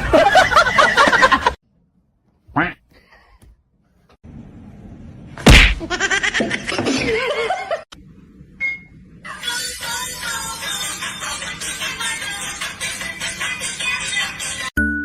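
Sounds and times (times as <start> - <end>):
loud sudden smack: 5.4 - 5.9.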